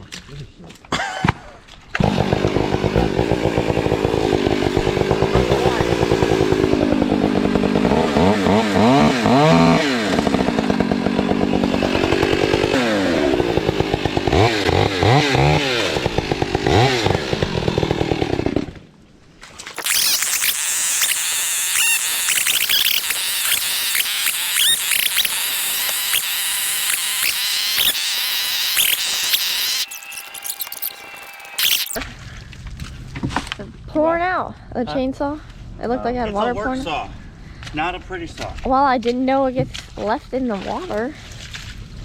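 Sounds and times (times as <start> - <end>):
chainsaw revving: 2.0 - 18.8, 19.8 - 32.0
chainsaw cutting wood: 2.0 - 18.9, 19.7 - 32.0.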